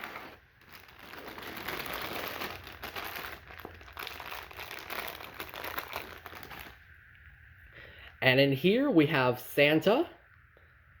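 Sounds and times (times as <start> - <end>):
packaging rustling and crinkling: 0.0 - 7.0.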